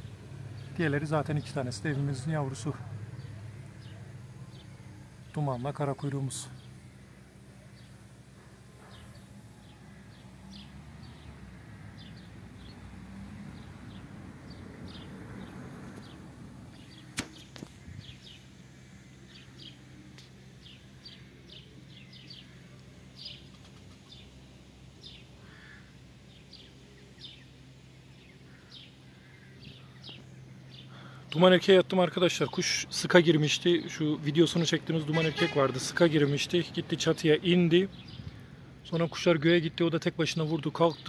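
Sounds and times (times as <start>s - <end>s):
small birds chirping: 0.0s - 41.0s
steady low hum: 0.0s - 41.0s
sharp click: 17.1s - 17.8s.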